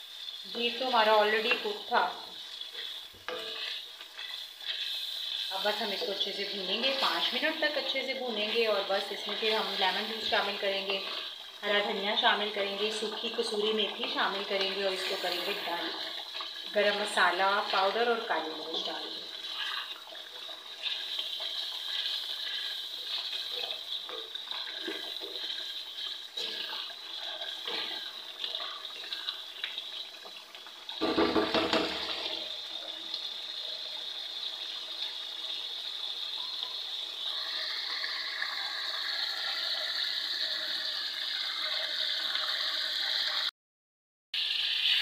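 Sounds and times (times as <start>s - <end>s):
curry sizzling and bubbling: 0.0s - 43.5s, 44.4s - 45.0s
wooden spatula scraping: 0.3s - 30.0s.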